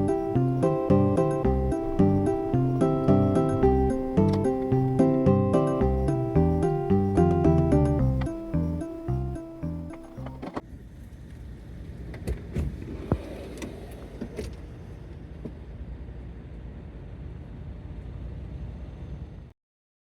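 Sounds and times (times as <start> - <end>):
vehicle low rumble: 0.0 - 12.8.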